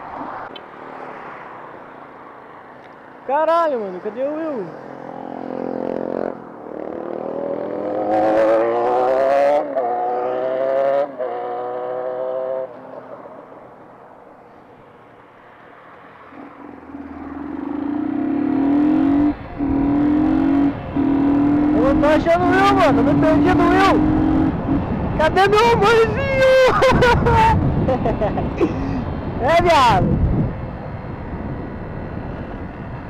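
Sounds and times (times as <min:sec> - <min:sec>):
motorcycle engine accelerating: 0:05.2 - 0:12.8, 0:16.4 - 0:33.0.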